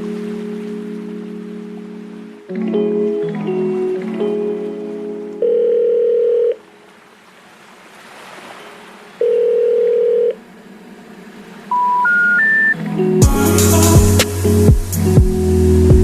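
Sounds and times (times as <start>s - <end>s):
long telephone beeps: 5.4s - 6.6s, 9.2s - 10.4s, 11.7s - 12.8s
rising three-tone signal: 11.7s - 16.0s.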